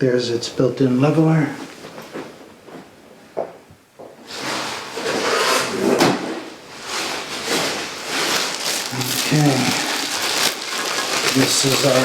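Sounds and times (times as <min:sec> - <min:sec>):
scraping and rustling: 0:06.7 - 0:12.0.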